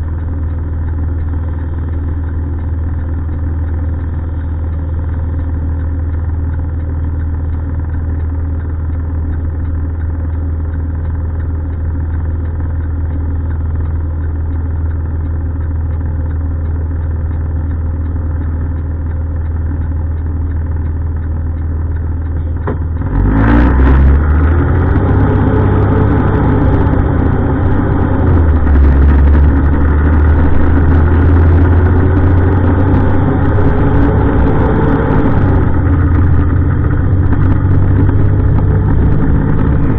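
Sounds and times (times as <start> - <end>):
truck engine revving: 22.9 - 39.9.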